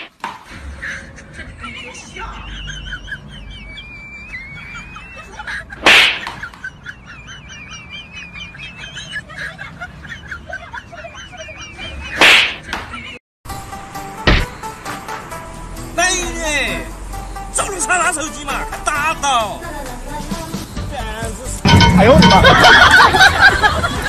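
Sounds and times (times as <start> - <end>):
small birds twittering: 2.0 - 13.0, 16.2 - 18.6, 20.1 - 21.6.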